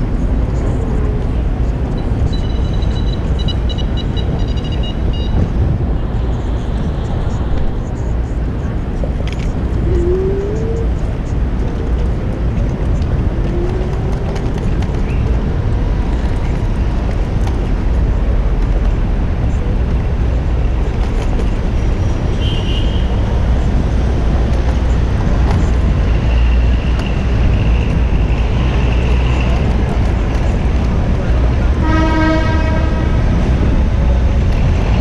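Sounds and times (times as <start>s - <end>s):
city street traffic: 0.0s - 35.0s
wind rushing over microphone: 0.0s - 35.0s.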